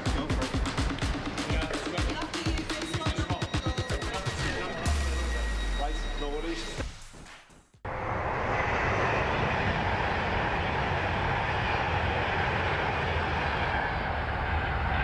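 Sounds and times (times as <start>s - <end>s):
rushing noise: 7.9s - 15.0s.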